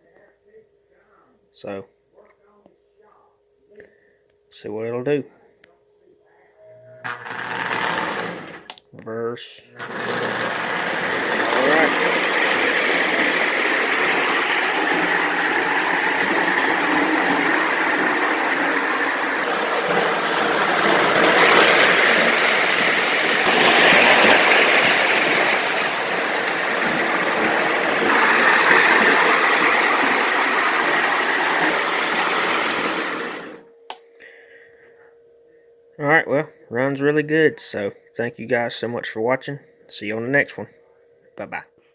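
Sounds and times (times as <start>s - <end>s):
toy train motor whir: 7.1s - 8.8s, 9.8s - 33.6s
wheels clattering on rails: 9.8s - 33.6s.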